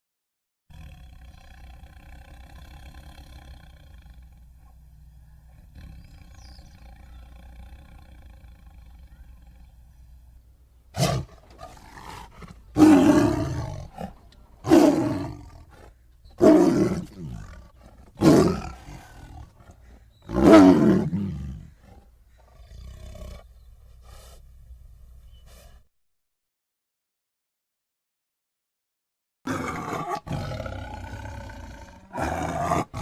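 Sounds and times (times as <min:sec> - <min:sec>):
tiger roaring: 0:00.7 - 0:04.8, 0:05.4 - 0:10.0, 0:10.9 - 0:24.4, 0:29.5 - 0:33.0.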